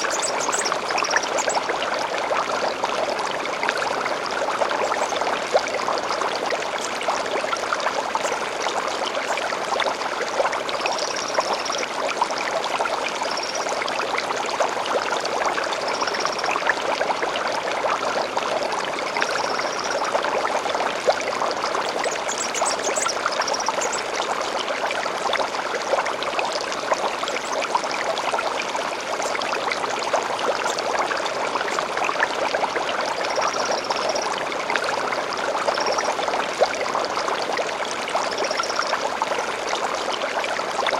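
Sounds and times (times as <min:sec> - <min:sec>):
stream running and splashing: 0:00.0 - 0:40.9.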